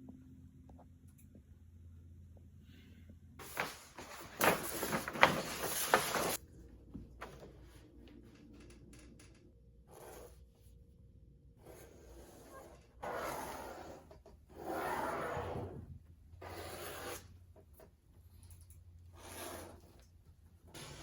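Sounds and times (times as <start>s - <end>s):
rustling and scraping: 3.4s - 6.4s.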